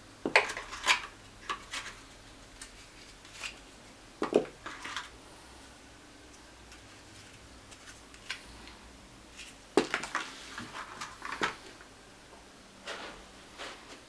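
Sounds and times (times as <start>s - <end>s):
items clattering on tabletop: 4.2s - 5.2s, 9.8s - 11.9s.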